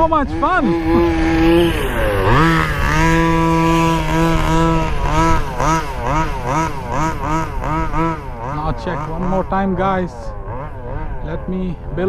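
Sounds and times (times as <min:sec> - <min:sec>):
small two-stroke engine revving: 0:00.0 - 0:12.0.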